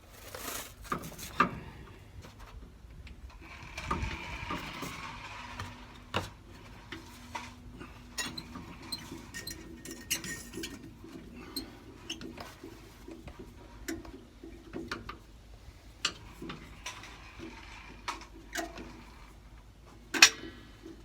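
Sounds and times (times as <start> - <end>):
scraping: 0.0 - 1.4.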